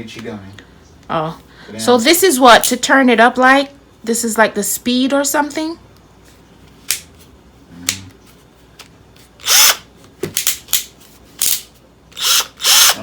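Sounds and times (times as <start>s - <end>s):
drill motor whirring: 9.4s - 9.9s, 12.1s - 13.0s.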